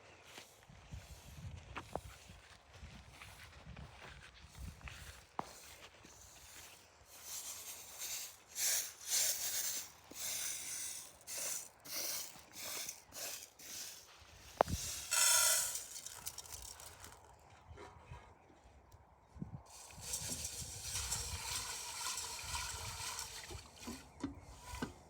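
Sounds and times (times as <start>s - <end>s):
rustling crunching noises: 5.2s - 18.0s.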